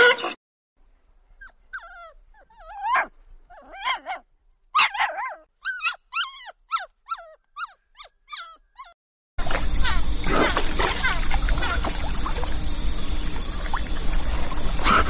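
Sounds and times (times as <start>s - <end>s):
puppies whimpering and yipping: 1.4s - 4.2s, 4.8s - 9.0s.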